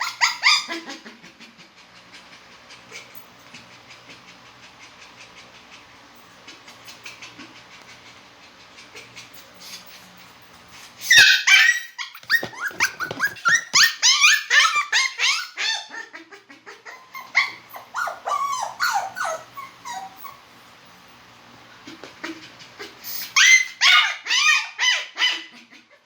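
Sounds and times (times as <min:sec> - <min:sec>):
dog yelping and whining: 0:00.0 - 0:01.1, 0:11.0 - 0:20.6, 0:22.8 - 0:26.0.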